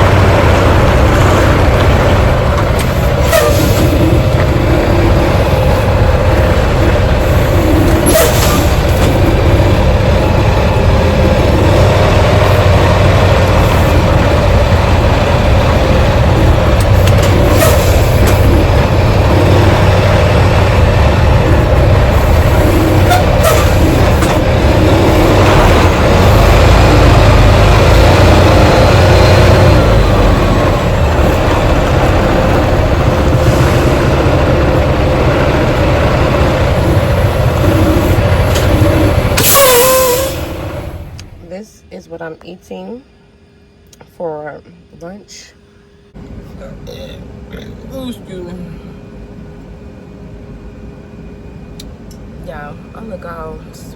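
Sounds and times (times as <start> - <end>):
truck engine hum: 0.0 - 53.9.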